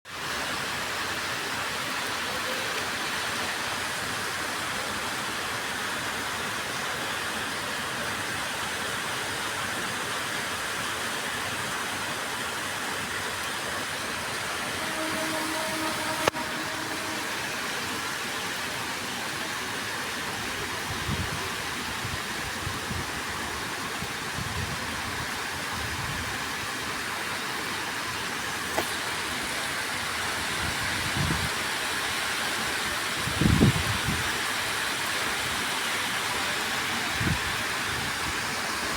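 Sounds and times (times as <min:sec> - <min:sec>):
steady rain falling: 0:00.1 - 0:38.9.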